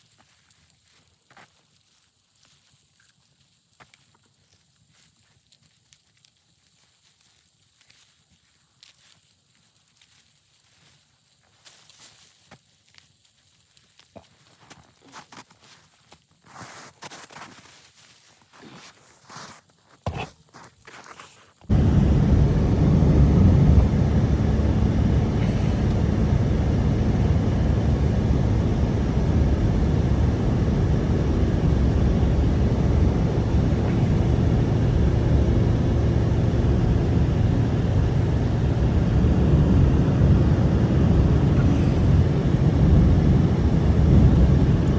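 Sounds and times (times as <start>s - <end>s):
strong blizzard wind: 21.7s - 44.9s.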